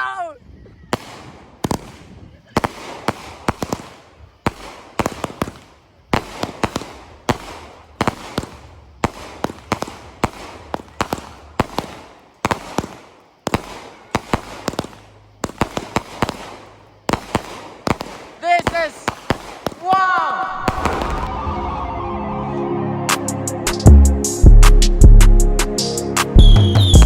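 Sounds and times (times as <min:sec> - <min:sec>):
firework bangs: 0:00.8 - 0:22.0
crackling firework pops: 0:00.9 - 0:21.4.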